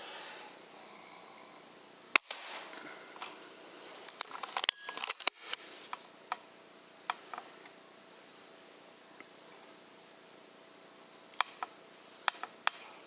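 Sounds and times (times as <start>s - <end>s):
air rifle shot: 2.1s - 2.7s
clicks and rattles: 4.0s - 5.6s.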